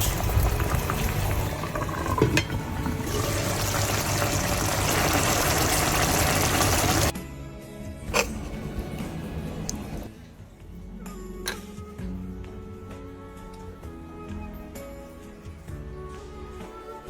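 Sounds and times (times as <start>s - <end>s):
liquid hissing and bubbling in pot: 0.0s - 7.1s.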